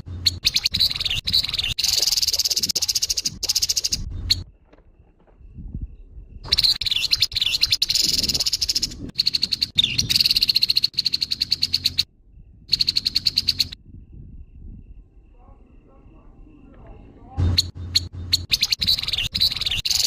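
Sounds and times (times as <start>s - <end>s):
bird giving harsh rattling call: 0.0s - 4.4s, 6.5s - 12.1s, 12.7s - 13.8s, 17.5s - 20.0s.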